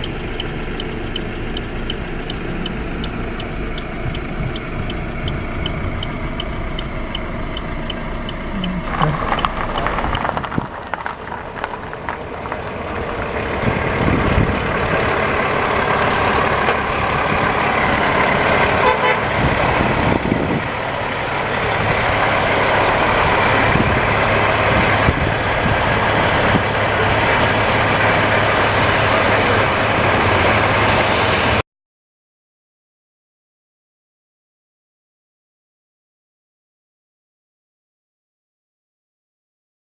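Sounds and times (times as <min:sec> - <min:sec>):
diesel truck passing: 0:00.0 - 0:31.6.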